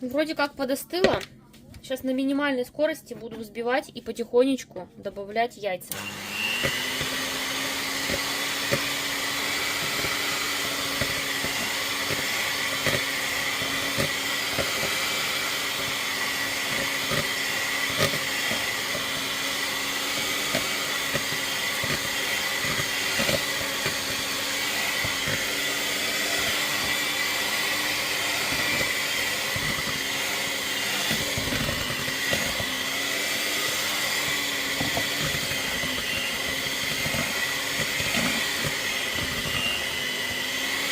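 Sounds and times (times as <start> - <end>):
electric mixer running: 5.9 - 40.9.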